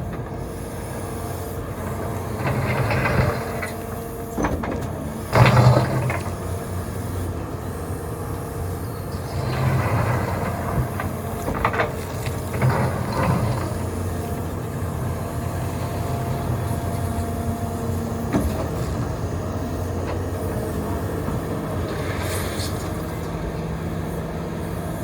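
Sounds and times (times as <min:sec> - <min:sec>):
excavator diesel engine running: 0:00.0 - 0:25.0
knocks and scrapes digging gravel: 0:09.2 - 0:23.4.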